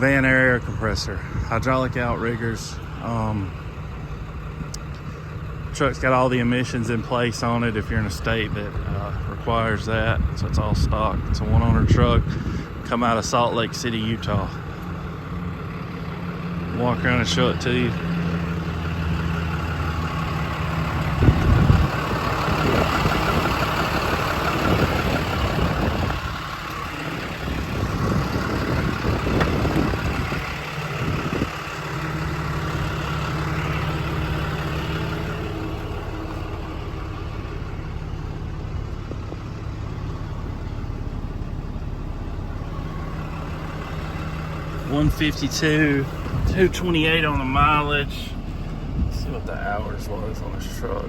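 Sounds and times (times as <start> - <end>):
diesel engine idling: 0.0 - 51.0
clunks and rustling: 29.0 - 30.5, 38.6 - 40.5.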